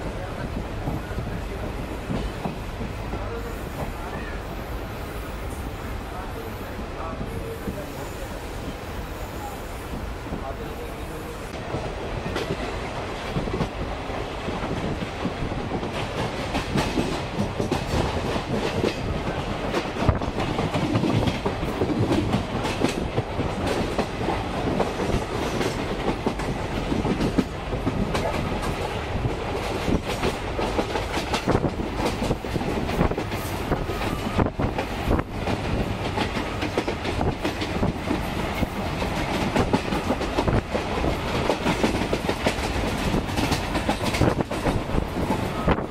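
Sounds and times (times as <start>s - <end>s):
rumble of wheels on rail: 0.0s - 45.9s
clicks of wheels over rail joints: 14.5s - 45.9s.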